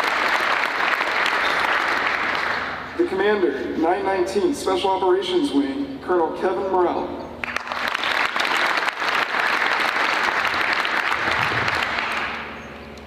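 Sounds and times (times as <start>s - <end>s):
audience applauding: 0.0s - 2.8s, 7.4s - 12.6s.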